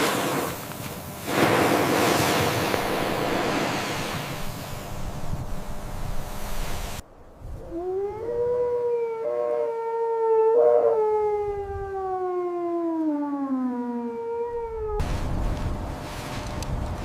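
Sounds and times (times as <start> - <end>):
wind noise: 0.0 - 8.8, 11.2 - 12.2, 14.5 - 17.0
dog howling: 7.6 - 12.8.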